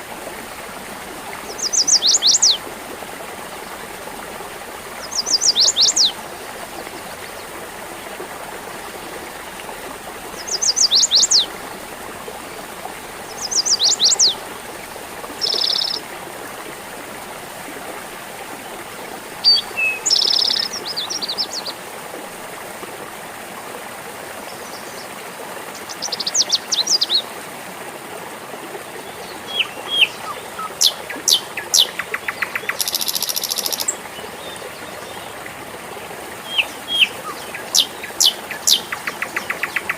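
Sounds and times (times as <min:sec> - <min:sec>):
stream babbling: 0:00.0 - 0:39.9
bird chirps: 0:15.4 - 0:16.0, 0:32.6 - 0:33.9.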